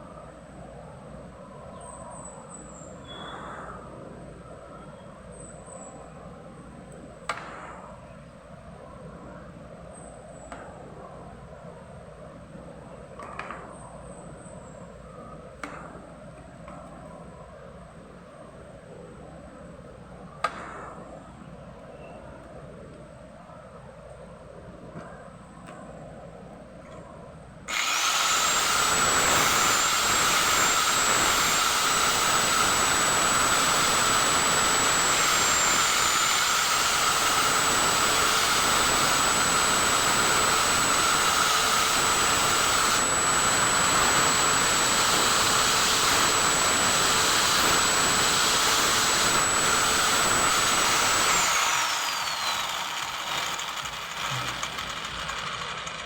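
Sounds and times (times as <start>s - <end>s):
power tool whining: 27.7s - 56.0s.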